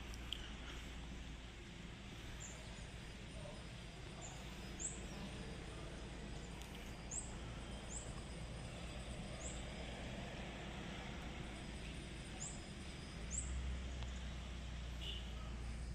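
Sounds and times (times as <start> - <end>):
bird chirping: 2.2 - 9.9, 11.8 - 14.4.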